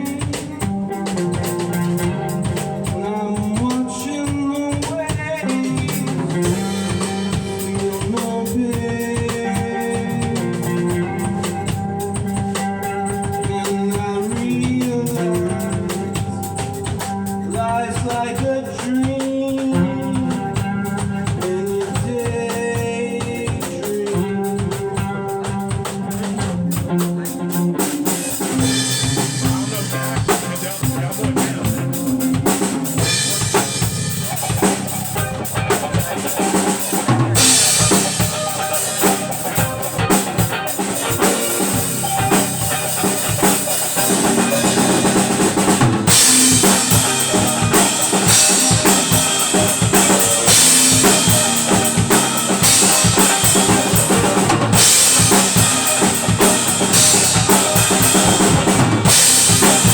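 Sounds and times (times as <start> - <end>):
backing instruments: 0.0 - 59.9
drum kit beat: 0.0 - 59.9
cymbals crashing: 28.2 - 59.9.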